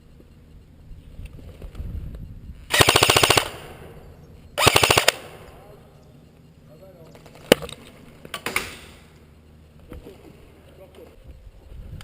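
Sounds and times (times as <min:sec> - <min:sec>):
airsoft gun full-auto bursts: 0:02.7 - 0:03.9, 0:04.6 - 0:05.4.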